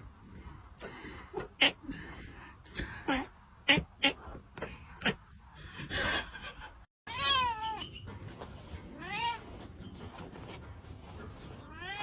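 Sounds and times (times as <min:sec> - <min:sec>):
cat meowing: 0:07.1 - 0:07.8, 0:11.7 - 0:12.0.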